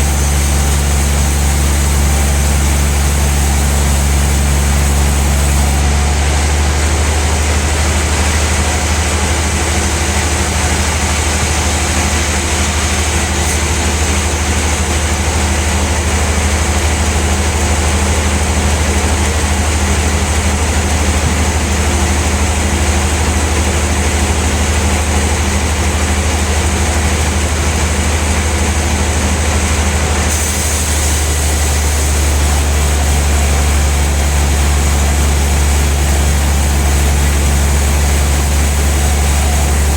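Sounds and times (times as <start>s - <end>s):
band saw machinery humming: 0.0s - 39.9s.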